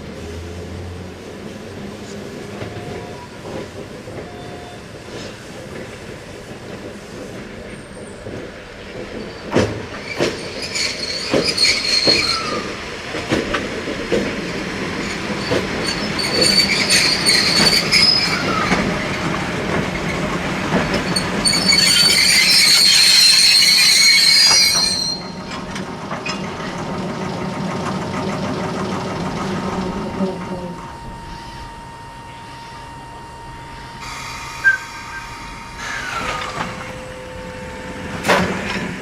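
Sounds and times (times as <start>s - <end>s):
train wheel squeal: 2.4s - 5.4s, 7.6s - 13.8s, 14.4s - 26.5s, 30.0s - 38.9s
train wheels clicking over rail joints: 5.0s - 30.6s.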